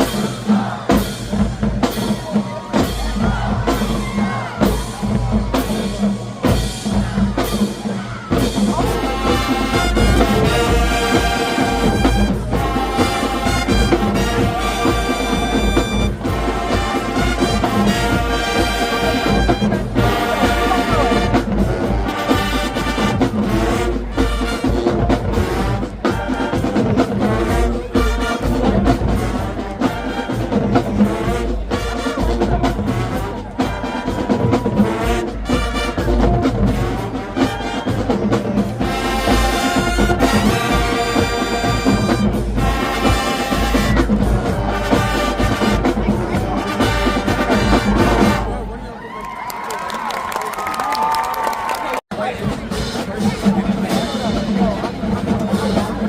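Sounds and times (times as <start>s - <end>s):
percussion: 0.0s - 48.8s, 49.5s - 56.0s
brass instruments: 0.0s - 56.0s
marching band playing: 0.0s - 56.0s.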